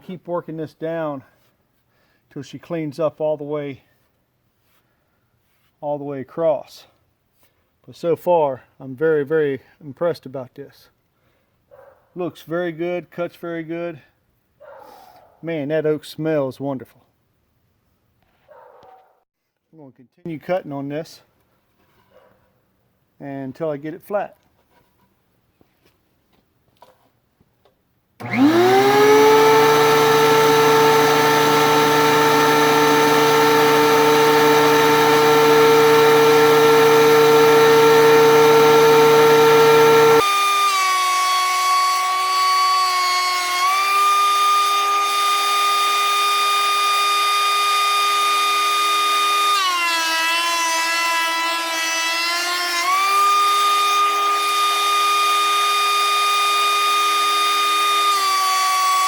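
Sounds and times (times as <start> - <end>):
thickness planer high whine: 28.2 - 59.0.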